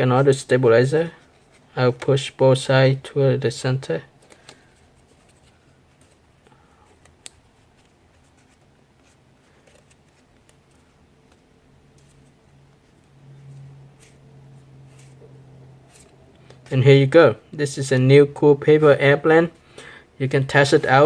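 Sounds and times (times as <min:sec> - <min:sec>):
steady low hum: 0:00.0 - 0:21.0
paper being folded and creased: 0:07.0 - 0:14.2, 0:14.8 - 0:15.2.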